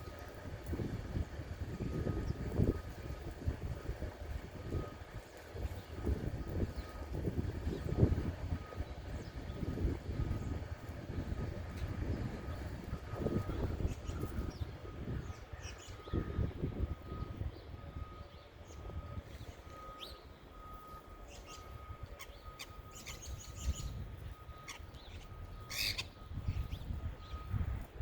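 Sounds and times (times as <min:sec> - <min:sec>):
small birds chirping: 0:13.4 - 0:16.5, 0:17.1 - 0:27.5.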